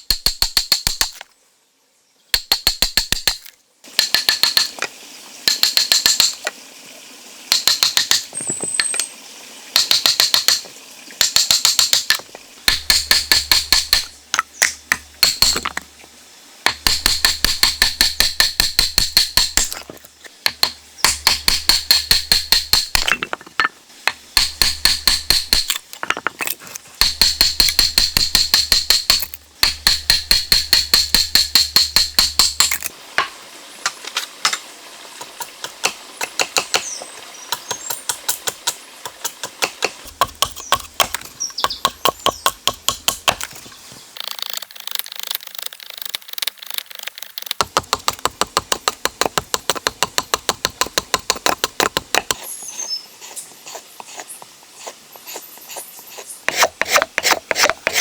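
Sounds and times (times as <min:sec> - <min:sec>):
rapid sharp tapping strikes: 0:05.5 - 0:06.4, 0:07.5 - 0:08.3, 0:09.8 - 0:14.1, 0:16.7 - 0:19.7, 0:20.5 - 0:23.2, 0:27.0 - 0:32.9, 0:35.3 - 0:36.9, 0:37.5 - 0:43.5.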